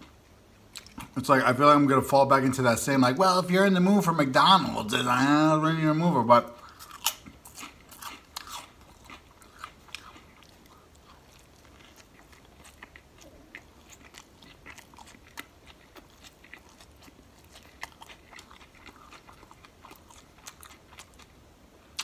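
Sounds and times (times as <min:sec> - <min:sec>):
person chewing food: 0:00.0 - 0:01.2, 0:06.5 - 0:22.0.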